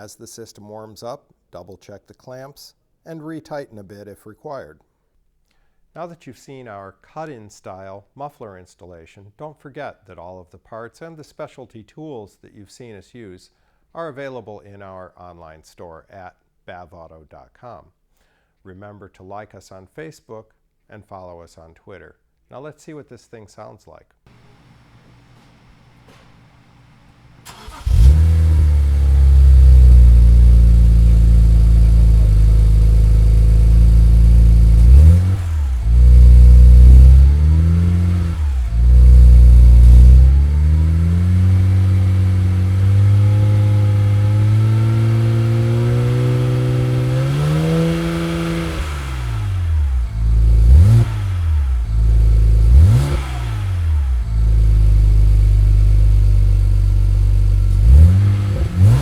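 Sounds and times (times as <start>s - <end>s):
car engine revving: 24.3s - 59.0s.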